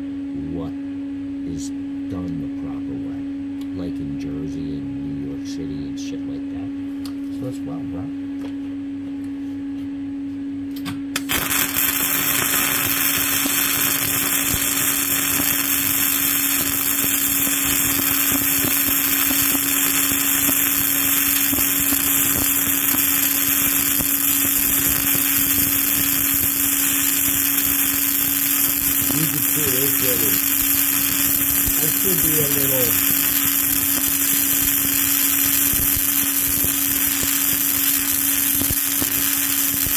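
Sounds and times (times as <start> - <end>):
constant hum: 0.0 - 39.9
welding arc crackling: 11.2 - 39.9.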